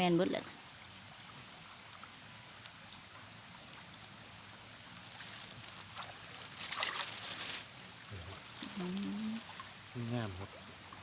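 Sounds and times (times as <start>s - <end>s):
faint rustles: 4.8s - 9.7s.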